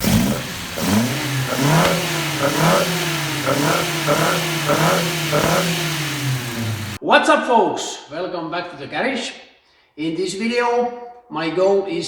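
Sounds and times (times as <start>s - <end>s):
car engine revving and idling: 0.0s - 7.0s.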